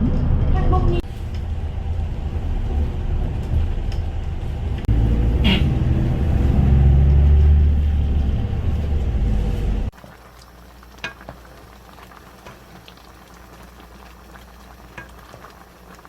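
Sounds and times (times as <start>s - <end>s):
vehicle road noise rumble: 0.0s - 10.0s.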